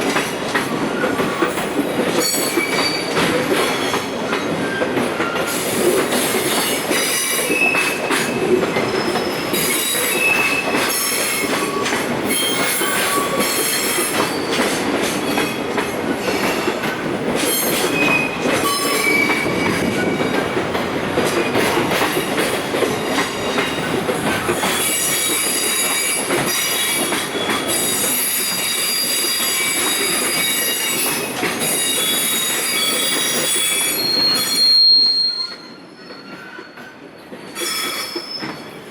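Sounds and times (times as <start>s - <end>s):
train rumble: 0.0s - 34.4s
train wheels squealing: 0.5s - 16.7s, 17.3s - 20.4s, 23.0s - 38.9s.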